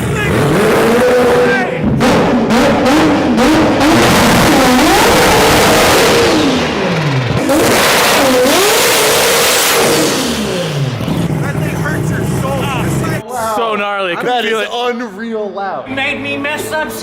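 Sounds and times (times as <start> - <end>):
engine revving: 0.0 - 13.2
raspy exhaust: 0.0 - 13.2.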